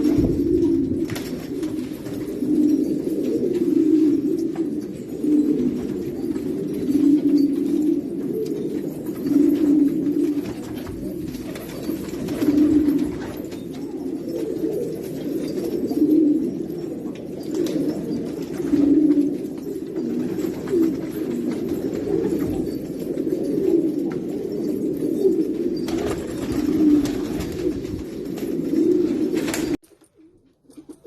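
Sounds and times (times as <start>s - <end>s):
pigeons cooing: 0.0s - 31.0s.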